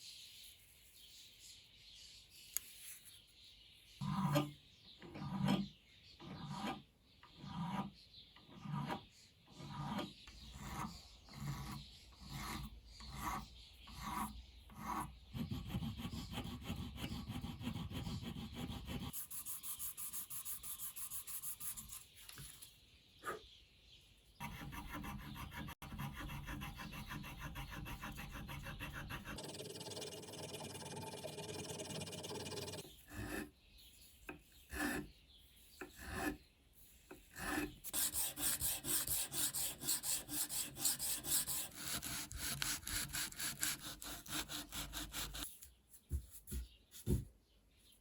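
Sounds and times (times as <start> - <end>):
hand file scraping: 9.6 - 22.0, 24.4 - 33.5, 34.5 - 35.1, 37.1 - 45.6.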